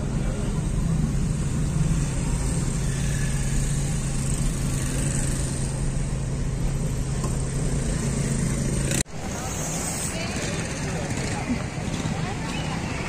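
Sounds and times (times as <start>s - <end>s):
car engine humming: 0.0s - 11.5s
road and traffic noise: 0.0s - 13.0s.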